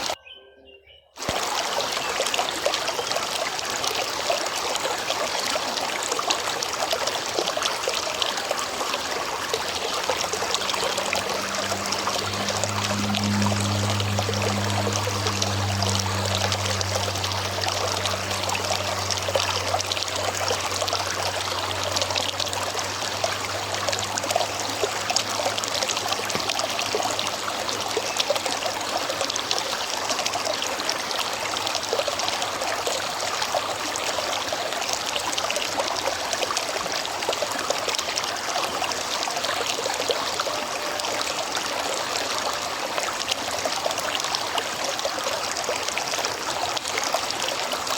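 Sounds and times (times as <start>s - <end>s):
river water rushing: 1.2s - 47.9s
low hum: 8.6s - 29.3s.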